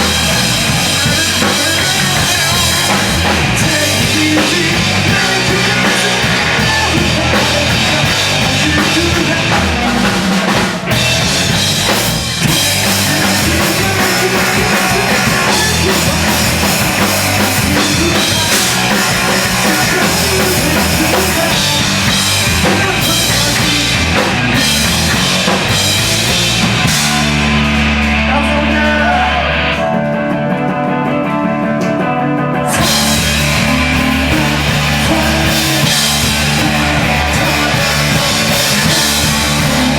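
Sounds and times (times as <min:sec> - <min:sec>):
drum kit: 0:00.0 - 0:39.9
hardcore band playing: 0:00.0 - 0:39.9.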